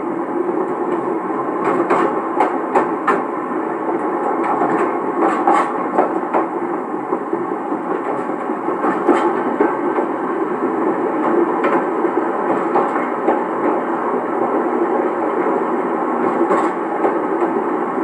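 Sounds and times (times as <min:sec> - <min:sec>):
train running noise: 0:00.0 - 0:18.0
sharp knocks and clicks: 0:01.6 - 0:03.2.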